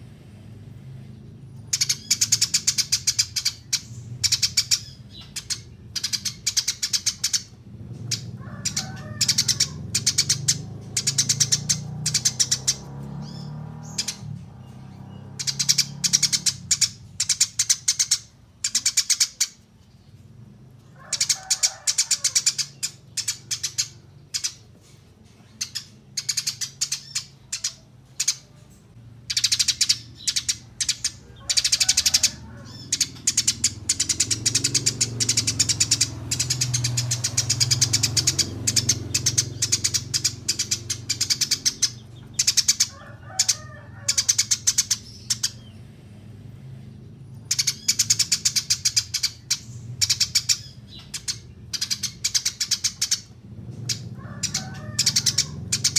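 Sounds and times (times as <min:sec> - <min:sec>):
sparrow chirping: 0:00.8 - 0:55.9.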